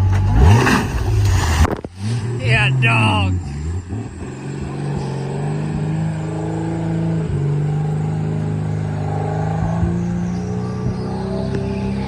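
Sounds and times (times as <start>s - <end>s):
car engine revving under load: 0.0s - 12.0s.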